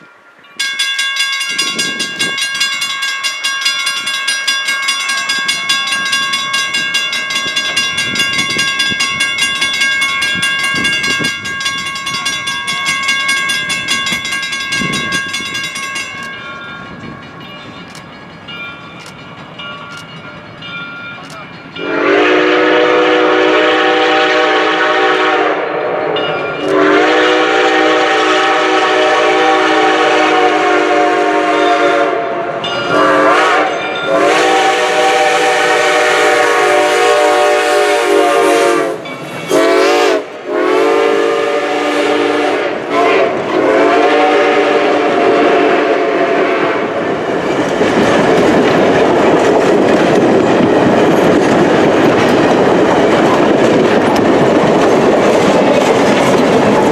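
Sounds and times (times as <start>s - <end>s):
train wheels rumbling on rails: 0.0s - 56.9s
steam whistle blasts: 21.8s - 47.0s.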